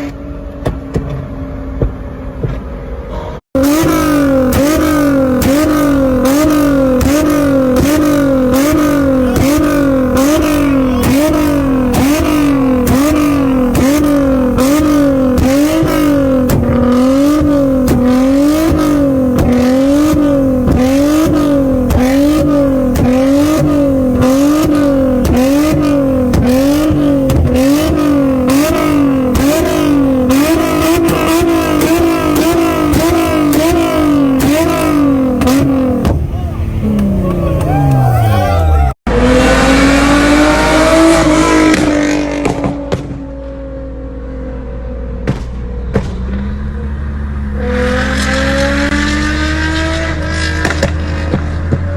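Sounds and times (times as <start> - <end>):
car engine at high revs: 0.0 - 51.9
exhaust crackles: 3.6 - 43.9.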